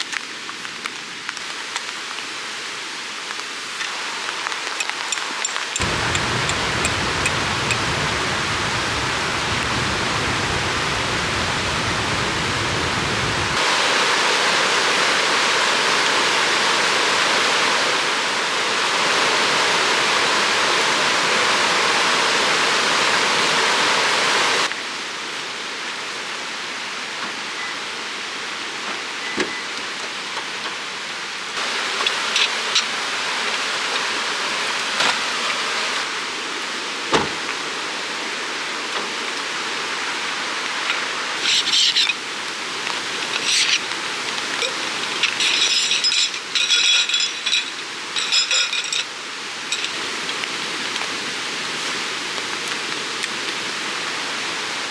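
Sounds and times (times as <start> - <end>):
rushing river water: 3.9 - 24.7, 31.5 - 46.6.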